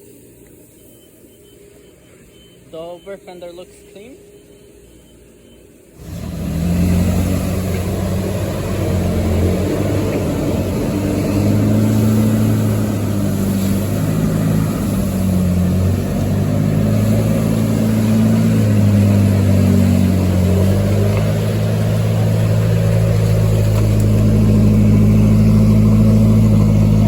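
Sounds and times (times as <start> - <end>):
car engine droning: 0.0 - 27.0.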